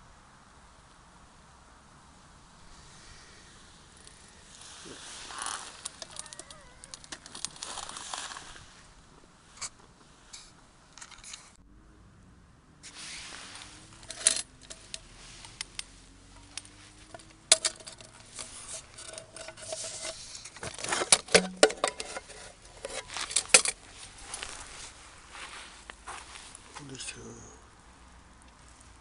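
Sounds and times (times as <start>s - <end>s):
small hard objects clinking: 4.0s - 8.4s, 13.8s - 24.6s.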